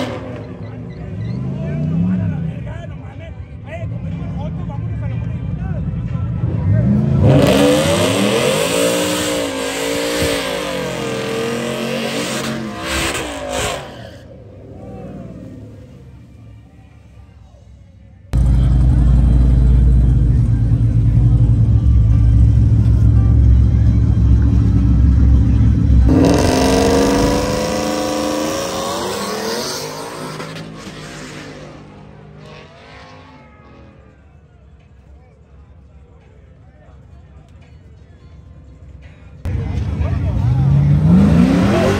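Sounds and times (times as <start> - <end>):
truck engine accelerating hard: 0.0 - 2.6, 6.4 - 16.2, 18.4 - 34.1, 39.5 - 41.9.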